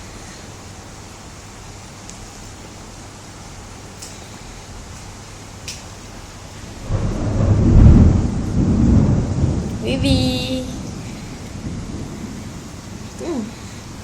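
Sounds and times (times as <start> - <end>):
faint hiss: 0.0 - 7.1, 8.6 - 14.0
loud low rumble: 6.8 - 13.9.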